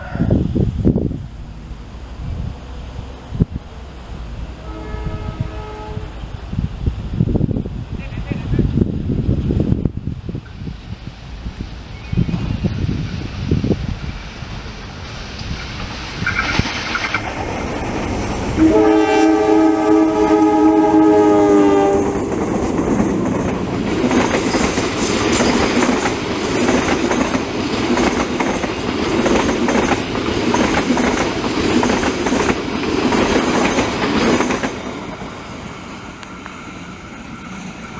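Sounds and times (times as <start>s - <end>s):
train air horn blast: 4.4s - 6.3s, 18.4s - 22.5s
train wheels clattering over rails: 10.3s - 19.0s, 21.1s - 37.9s.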